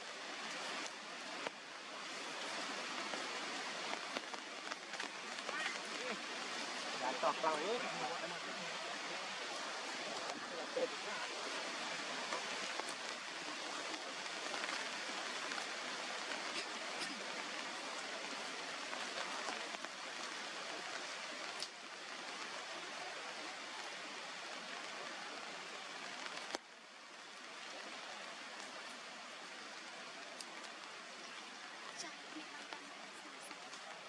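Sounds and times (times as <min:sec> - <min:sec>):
steady outdoor hiss: 0:00.0 - 0:34.0
faint clicks: 0:03.8 - 0:05.8.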